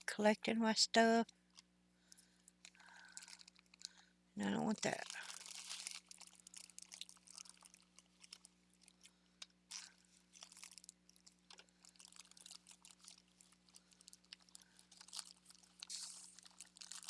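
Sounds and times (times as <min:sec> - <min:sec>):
faint rustling of craft pieces: 0:01.0 - 0:17.0.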